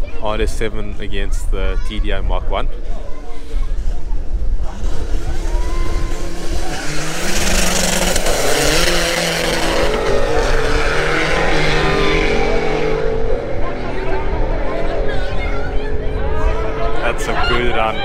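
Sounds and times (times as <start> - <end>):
race cars accelerating hard: 4.6 - 18.0.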